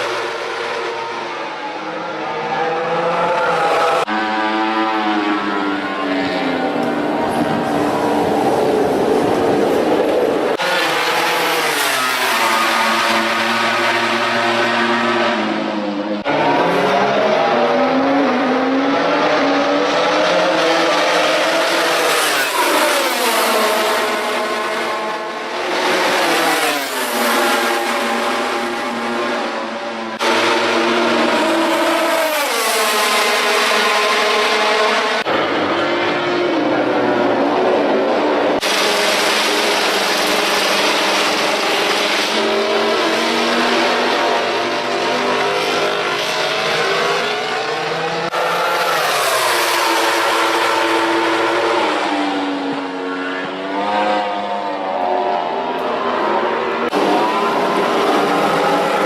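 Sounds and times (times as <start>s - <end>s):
racing motorcycle engines revving: 0.0s - 59.0s.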